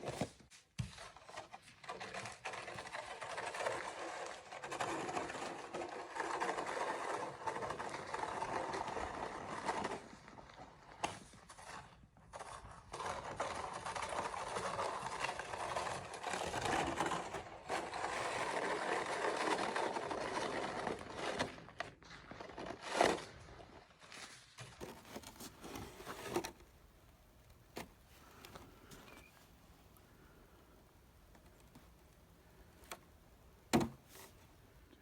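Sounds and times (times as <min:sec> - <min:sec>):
snow shovel scraping: 0:02.4 - 0:21.7, 0:24.1 - 0:26.6.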